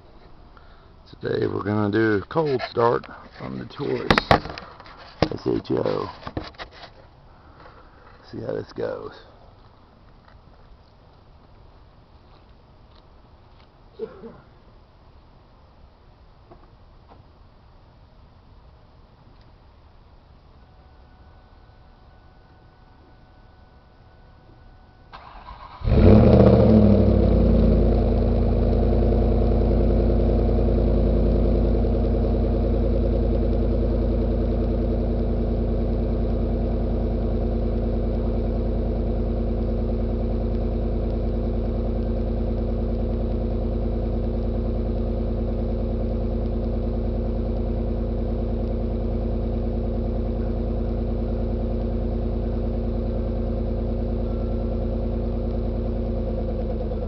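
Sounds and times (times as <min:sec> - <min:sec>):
car engine cold start: 0:25.1 - 0:28.8
car engine fast idle: 0:25.1 - 0:57.0.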